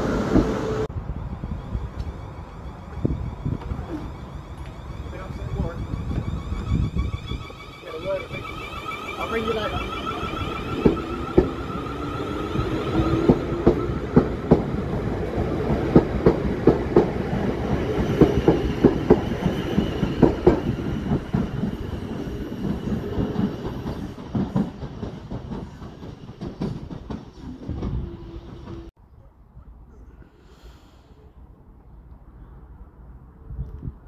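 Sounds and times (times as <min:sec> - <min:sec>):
train rumble: 0:00.0 - 0:29.0
train wheels clicking over rail joints: 0:10.3 - 0:11.9, 0:12.9 - 0:28.9.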